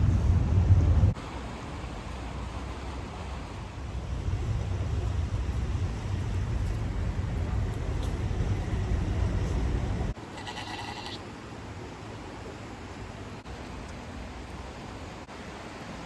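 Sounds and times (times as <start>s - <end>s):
wind buffeting microphone: 0.0s - 1.2s, 3.7s - 10.2s
farm animal bleat: 10.2s - 11.2s.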